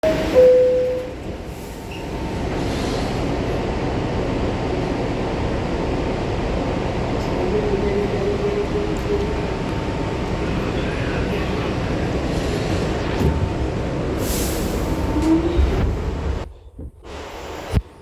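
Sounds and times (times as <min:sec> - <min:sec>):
short tone: 0:00.0 - 0:01.2
subway train rumbling: 0:00.0 - 0:18.0.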